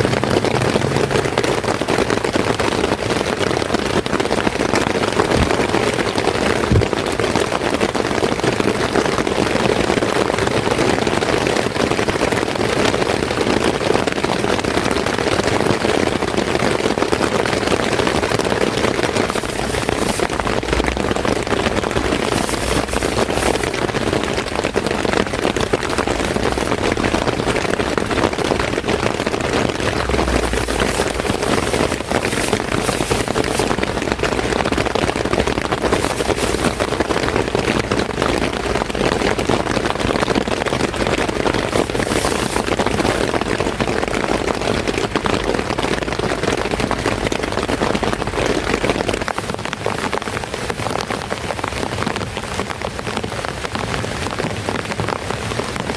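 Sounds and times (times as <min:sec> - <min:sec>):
heavy rain pattering: 0:00.0 - 0:55.9
low rumble: 0:19.0 - 0:39.0.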